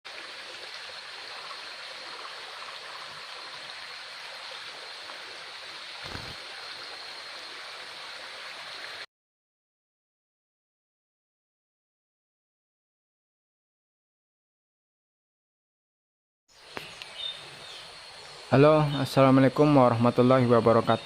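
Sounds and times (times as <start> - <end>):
stream water rushing: 0.1 - 9.1.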